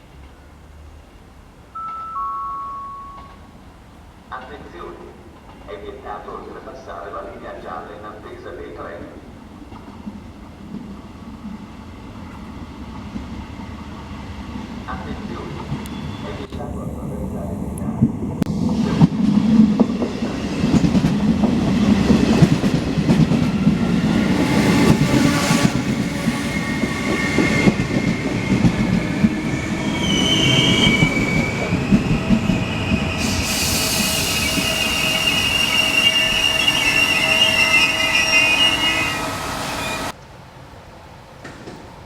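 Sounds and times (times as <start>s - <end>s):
train wheels rumbling and clacking: 9.5s - 40.2s
brake and wheel squeal: 29.9s - 40.2s.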